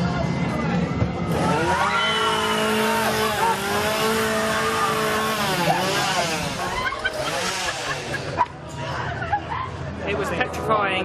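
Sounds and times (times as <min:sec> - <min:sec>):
chainsaw engine revving: 0:01.3 - 0:08.5.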